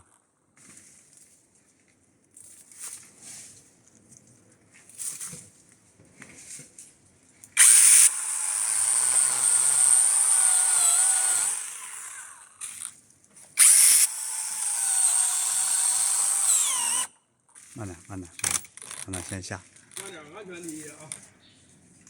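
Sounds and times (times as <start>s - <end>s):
chainsaw whining while cutting wood: 7.6s - 12.8s, 13.6s - 17.1s.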